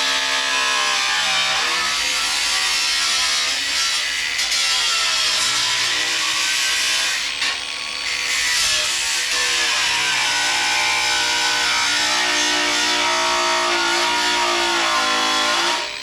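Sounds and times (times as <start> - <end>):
power tool grinding sheet steel: 0.0 - 16.0.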